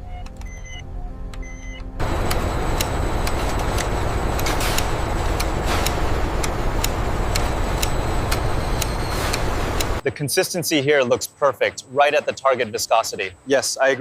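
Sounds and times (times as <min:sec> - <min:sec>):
sharp machine clicks: 0:02.0 - 0:10.0
machinery rumble and hiss: 0:02.0 - 0:10.1.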